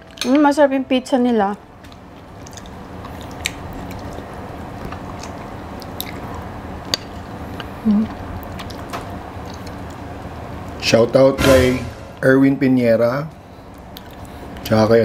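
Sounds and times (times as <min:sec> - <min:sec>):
people chewing: 0:01.3 - 0:10.8, 0:13.4 - 0:14.9.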